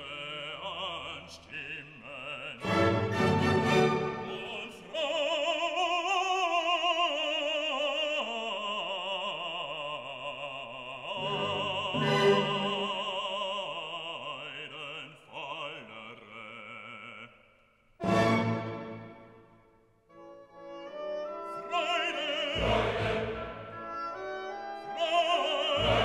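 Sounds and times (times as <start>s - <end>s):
operatic singing: 0.0s - 19.5s, 20.8s - 26.0s
musical accompaniment: 2.6s - 4.7s, 11.2s - 13.1s, 18.0s - 26.0s.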